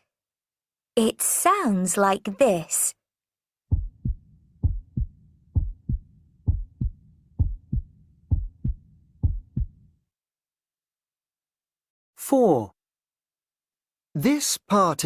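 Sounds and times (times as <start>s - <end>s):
heartbeat thumps: 3.7s - 9.9s.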